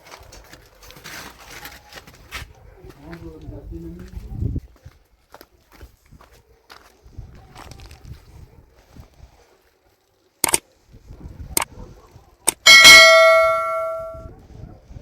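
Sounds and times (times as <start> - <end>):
metal object clanging: 12.5 - 14.3.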